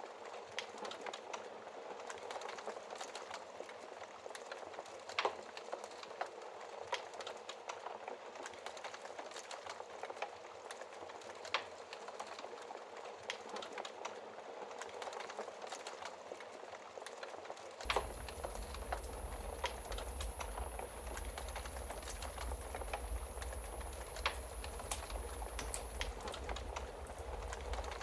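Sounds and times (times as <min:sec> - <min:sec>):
wood fire crackling: 0:16.9 - 0:28.0
sharp snaps of fire: 0:17.8 - 0:28.0.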